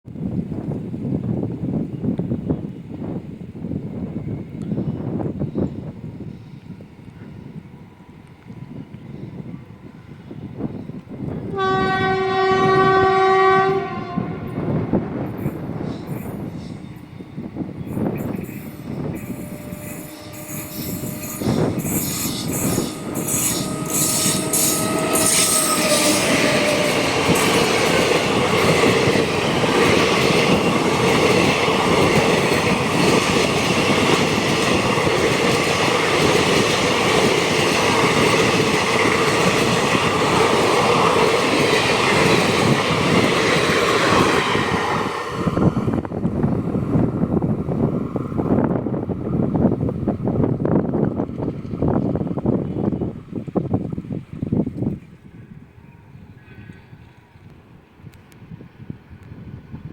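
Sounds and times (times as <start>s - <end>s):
train horn tones: 11.4s - 15.1s, 18.9s - 27.8s
train wheels rushing and clattering: 14.6s - 53.2s.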